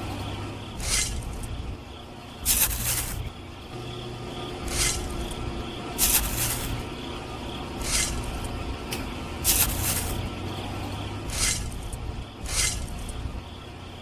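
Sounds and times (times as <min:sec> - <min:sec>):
low steady hum: 0:00.0 - 0:14.0
short hissing bursts: 0:02.4 - 0:03.2.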